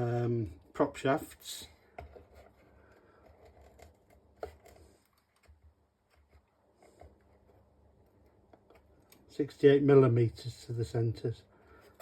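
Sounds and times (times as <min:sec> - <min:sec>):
faint clicks of small items handled: 0:01.7 - 0:09.3.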